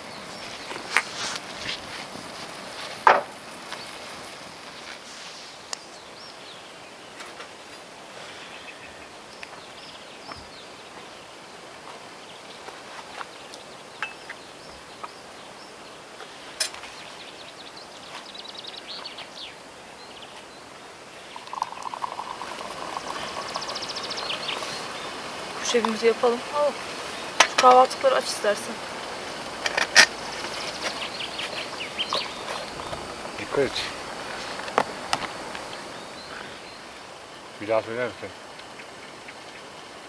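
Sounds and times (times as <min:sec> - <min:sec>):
birds chirping and singing: 0:21.2 - 0:34.0.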